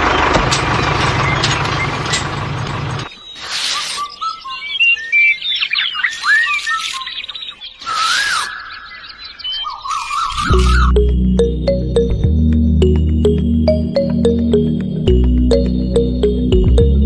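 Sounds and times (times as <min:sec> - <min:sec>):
birds chirping and whistling: 0:01.0 - 0:11.0
harsh bird squawks: 0:03.2 - 0:04.6, 0:06.0 - 0:07.1, 0:07.7 - 0:10.9.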